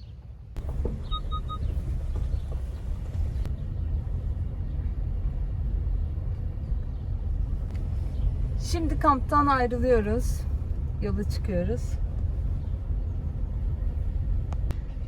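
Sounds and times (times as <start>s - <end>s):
car engine rumble: 0.0s - 15.0s
electronic car beeps: 0.8s - 1.8s.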